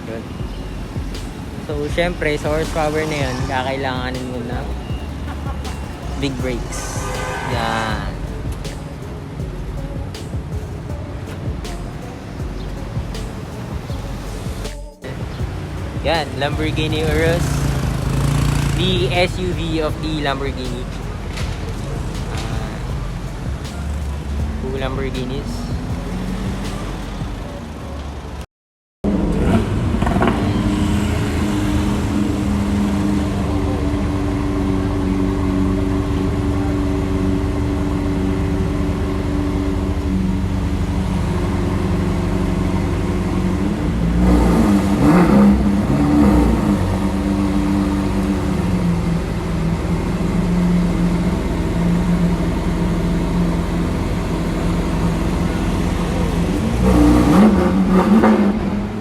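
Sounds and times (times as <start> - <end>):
engine revving with throttle blips: 0.0 - 28.4, 29.0 - 59.0
sports car engine idling: 0.2 - 28.3, 29.9 - 59.0.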